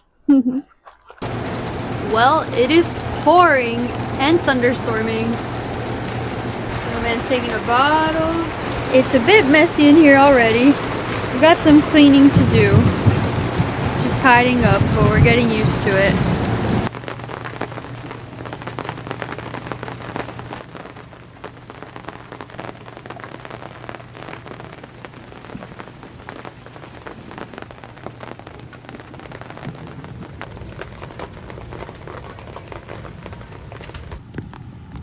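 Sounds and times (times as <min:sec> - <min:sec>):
heavy rain drumming on camper: 0:01.2 - 0:35.0.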